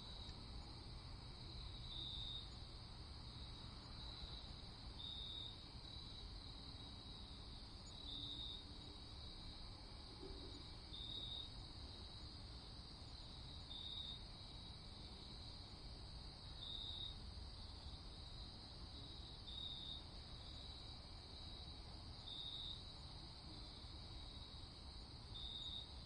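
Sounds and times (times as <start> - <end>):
bright insect trill: 0.0 - 9.7, 10.4 - 15.8, 16.4 - 26.0
crickets chirping: 0.0 - 26.0.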